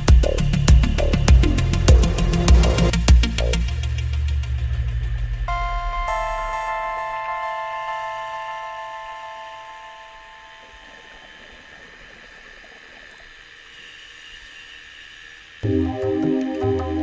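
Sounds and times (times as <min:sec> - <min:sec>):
background music: 0:05.5 - 0:11.4
ambient music: 0:05.5 - 0:12.3, 0:15.6 - 0:17.0
faint steady hiss: 0:05.5 - 0:15.7.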